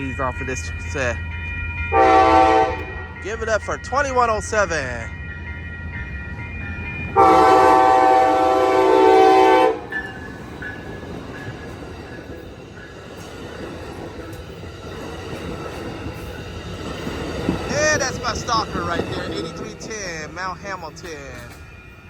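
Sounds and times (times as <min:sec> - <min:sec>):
train rumbling on rails: 0:00.0 - 0:22.0
locomotive horn blast: 0:01.9 - 0:03.1, 0:07.2 - 0:09.9.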